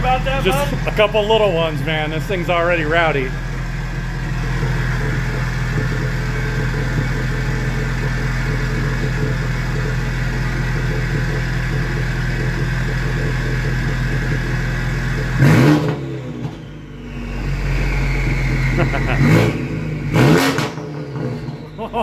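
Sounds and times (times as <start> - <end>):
car engine idling rowdy: 0.0 - 22.0
engine rev blip: 13.2 - 21.9.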